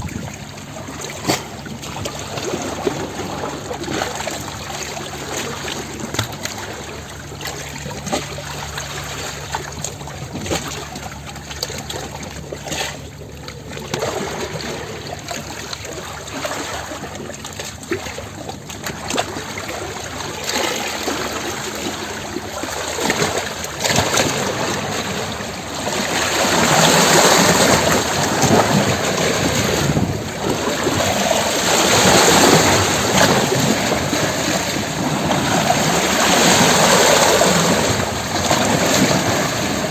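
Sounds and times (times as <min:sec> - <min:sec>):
waves washing against rocks: 0:00.0 - 0:10.9, 0:13.6 - 0:39.9.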